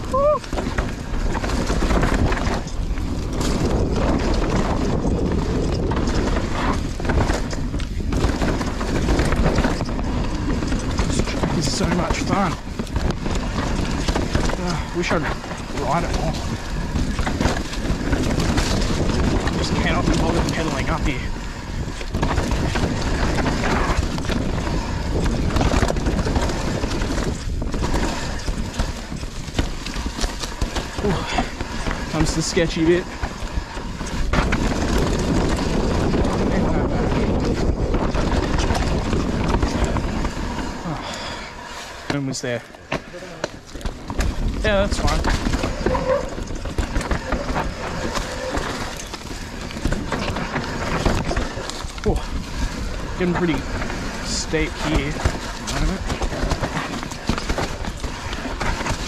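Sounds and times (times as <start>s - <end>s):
bike rattling over bumps: 0.0s - 59.0s
bike tyres skidding on dirt: 0.0s - 59.0s
wind rumble on microphone: 0.0s - 59.0s.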